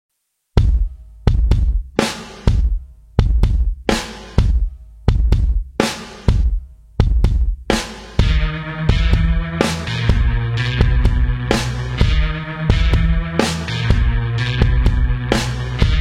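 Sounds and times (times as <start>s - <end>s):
drum kit rock beat: 0.6s - 16.0s
guitar: 8.2s - 16.0s.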